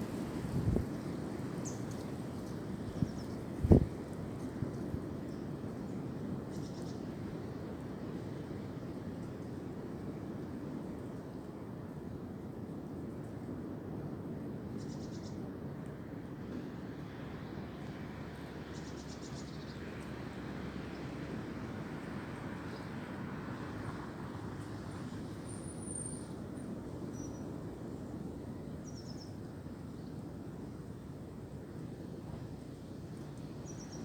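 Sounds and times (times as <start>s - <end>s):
wind through tree leaves: 0.0s - 34.0s
faint high bird chirps: 28.8s - 29.4s.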